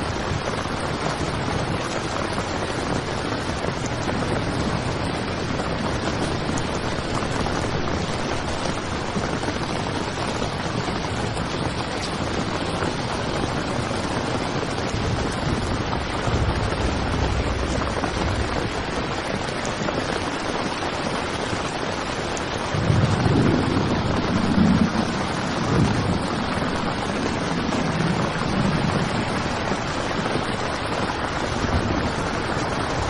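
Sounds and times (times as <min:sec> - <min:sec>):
heavy rain on tent fabric: 0:00.0 - 0:33.0
low rumble: 0:15.0 - 0:19.9.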